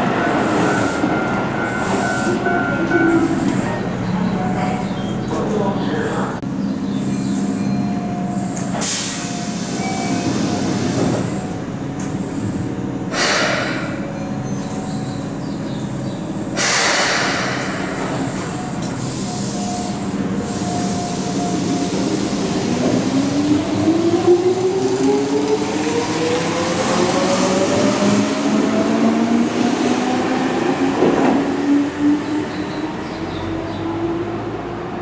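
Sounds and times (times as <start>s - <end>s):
train equipment humming: 0.0s - 35.0s
compressed air hissing: 13.1s - 14.0s, 16.6s - 18.0s.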